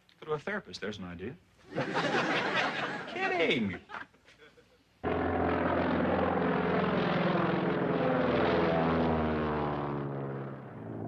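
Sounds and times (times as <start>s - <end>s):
propeller engine droning: 5.0s - 11.0s.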